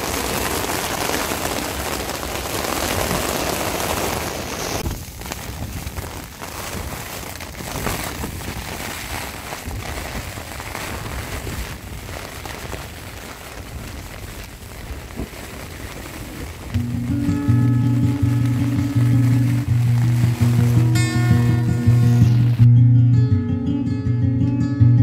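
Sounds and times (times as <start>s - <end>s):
rain hissing on a tent: 0.0s - 22.7s
raindrop hits: 0.0s - 22.7s
low rumble: 16.6s - 23.1s.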